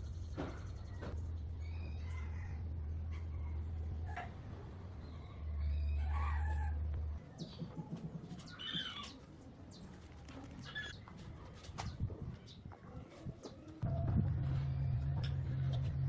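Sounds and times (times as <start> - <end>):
low machine hum: 13.8 - 16.0.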